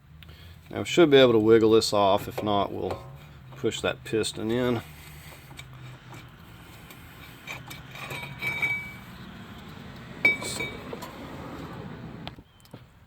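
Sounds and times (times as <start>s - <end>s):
metal parts clinking and ringing: 7.4s - 9.0s.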